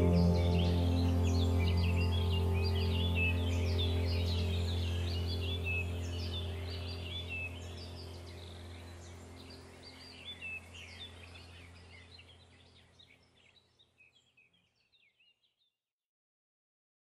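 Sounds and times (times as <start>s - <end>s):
low steady hum: 0.0s - 13.6s
songbirds chirping: 0.0s - 15.7s.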